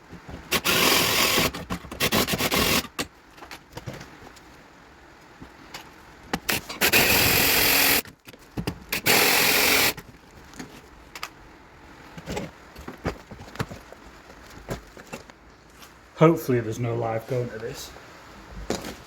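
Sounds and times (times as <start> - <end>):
cordless power driver: 0.5 - 2.9, 6.5 - 8.0, 9.0 - 10.0.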